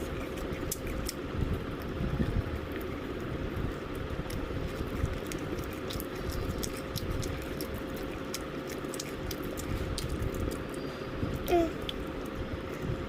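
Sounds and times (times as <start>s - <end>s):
background hum: 0.0s - 13.0s
crunchy chewing: 0.0s - 13.0s.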